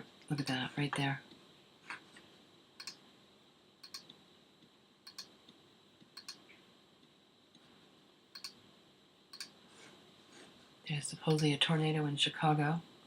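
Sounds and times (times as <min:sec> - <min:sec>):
computer mouse double clicks: 0:08.4 - 0:08.6.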